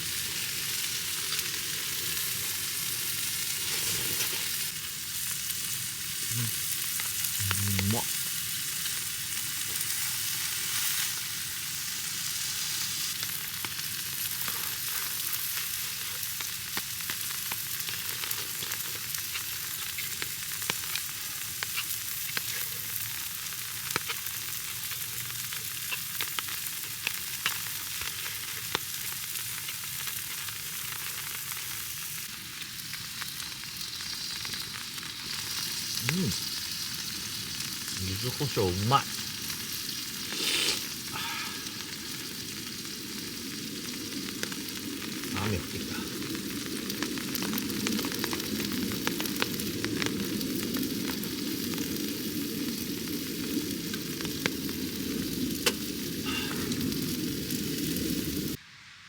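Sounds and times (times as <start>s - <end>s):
meat sizzling in a pan: 0.0s - 58.7s
fat spitting and popping: 40.3s - 41.2s.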